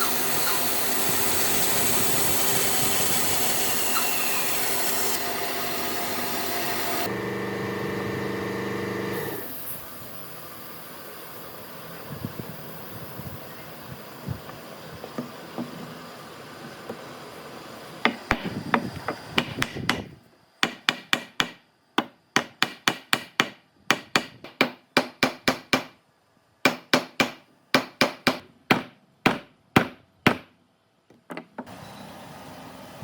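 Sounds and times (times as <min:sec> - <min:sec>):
hammer striking wood: 0:18.1 - 0:26.0, 0:26.7 - 0:30.5.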